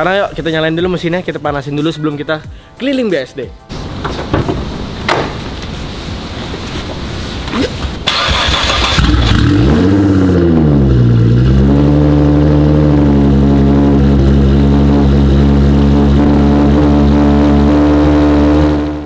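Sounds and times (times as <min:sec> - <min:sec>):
starter motor cranking: 0:08.1 - 0:09.6
car engine revving and idling: 0:08.1 - 0:19.0.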